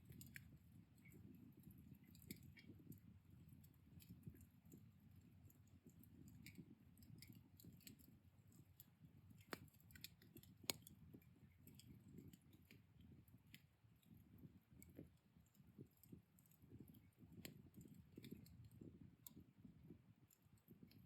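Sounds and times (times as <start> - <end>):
embers crackling and popping: 8.8 - 19.4.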